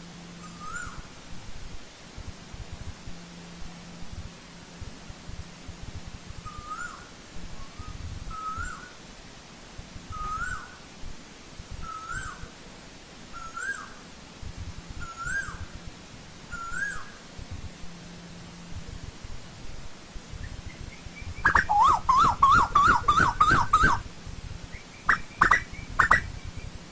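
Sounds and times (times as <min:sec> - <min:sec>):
koel whistled calls: 0:06.5 - 0:07.0, 0:07.7 - 0:08.9, 0:10.1 - 0:10.7, 0:16.5 - 0:17.1, 0:20.4 - 0:24.0, 0:24.7 - 0:26.8.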